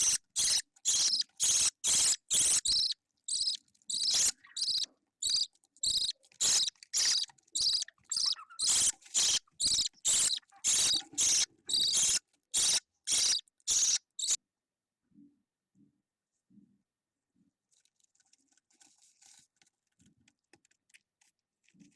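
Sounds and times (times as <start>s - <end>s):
bird chick begging chirps: 0.0s - 14.4s.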